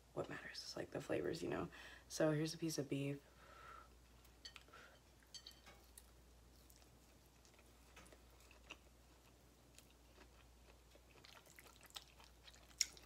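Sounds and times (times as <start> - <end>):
faint chewing: 4.1 - 13.0.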